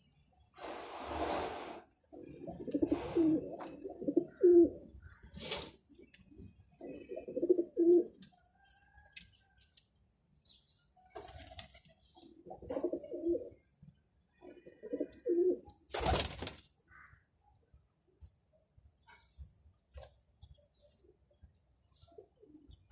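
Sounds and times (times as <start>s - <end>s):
pigeons cooing: 2.1s - 8.2s, 12.4s - 13.7s, 14.4s - 15.7s.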